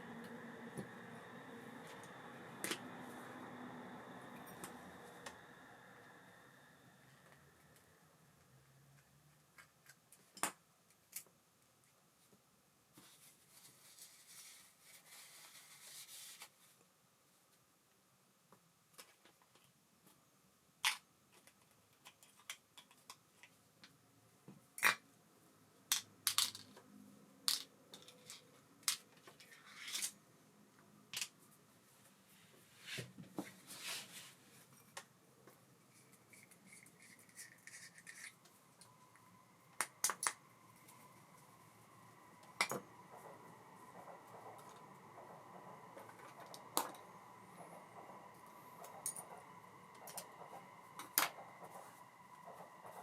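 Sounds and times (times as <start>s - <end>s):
faint steady whine: 0.0s - 18.7s, 23.4s - 53.0s
small metal parts clicking and scraping: 35.9s - 38.9s.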